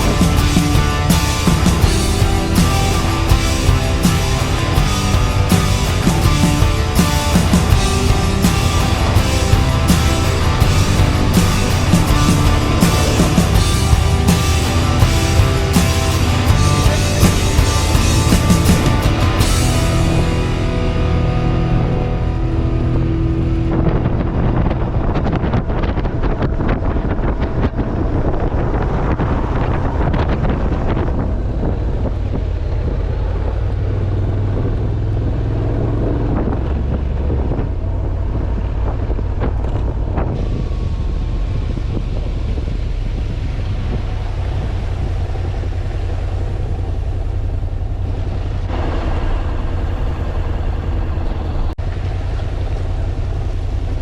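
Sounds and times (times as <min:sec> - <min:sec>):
rock music: 0:00.0 - 0:25.6
motorcycle engine drone: 0:00.0 - 0:54.0
wind rush on microphone: 0:00.0 - 0:54.0.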